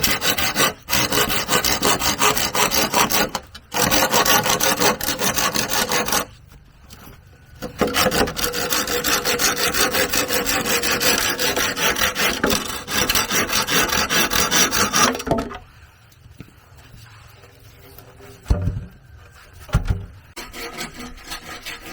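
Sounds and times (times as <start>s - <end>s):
hand tool rasping on wood: 0.0s - 6.3s, 7.6s - 15.3s, 20.4s - 21.9s.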